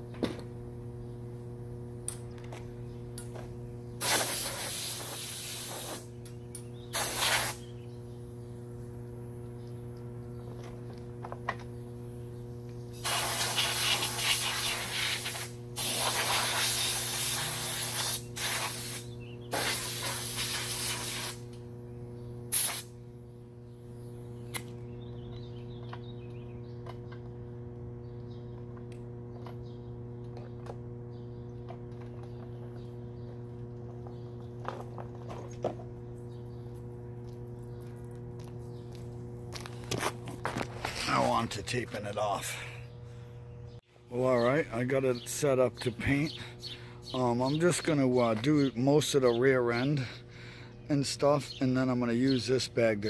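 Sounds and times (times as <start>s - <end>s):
steady low hum: 0.0s - 53.0s
compressed air hissing bursts: 4.0s - 6.1s, 6.9s - 7.7s, 13.0s - 21.5s, 22.5s - 23.0s
sharp click: 24.5s - 24.8s.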